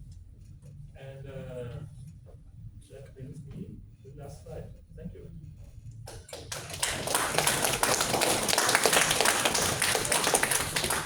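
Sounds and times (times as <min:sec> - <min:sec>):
audience applause: 0:06.1 - 0:11.0.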